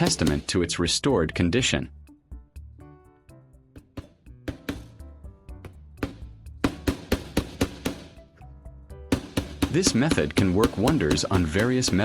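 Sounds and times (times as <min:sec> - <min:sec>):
hammer striking nails into wood: 0:00.0 - 0:00.6, 0:04.0 - 0:05.0, 0:05.6 - 0:08.2, 0:09.1 - 0:12.0
background music: 0:00.0 - 0:12.0.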